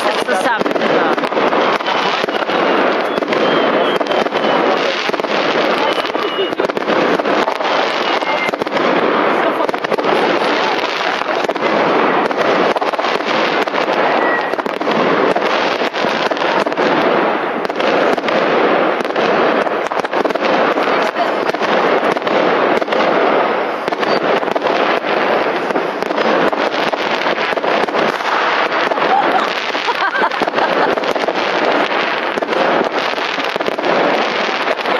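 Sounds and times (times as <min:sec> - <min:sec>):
fireworks crackling and banging: 0:00.0 - 0:34.9.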